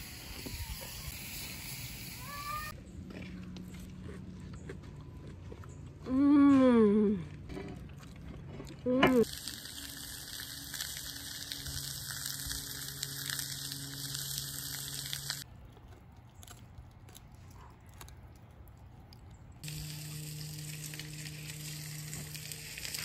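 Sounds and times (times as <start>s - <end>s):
food sizzling in a hot pan: 0.0s - 2.7s, 9.2s - 15.4s, 19.6s - 23.0s.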